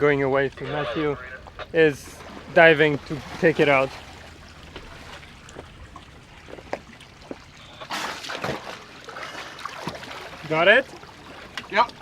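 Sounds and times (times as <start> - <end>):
water sloshing and trickling: 0.0 - 12.0
water splash: 0.5 - 10.5.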